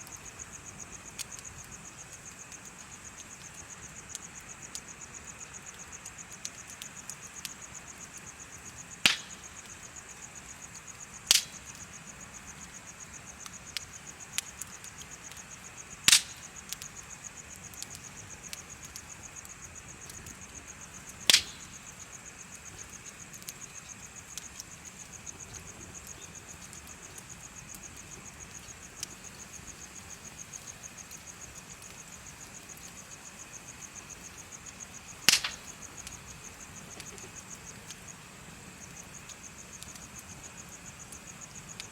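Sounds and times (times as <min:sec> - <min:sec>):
bonfire wood crackling: 0:00.0 - 0:41.9
insects chirping: 0:00.0 - 0:41.9
loud sharp fire pops: 0:09.0 - 0:09.8, 0:11.3 - 0:11.8, 0:16.0 - 0:16.9, 0:21.1 - 0:21.9, 0:35.2 - 0:36.2.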